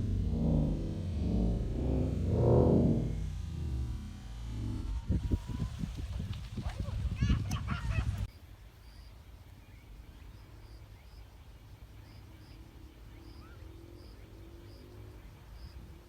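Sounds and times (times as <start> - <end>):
low rumble: 0.0 - 8.3.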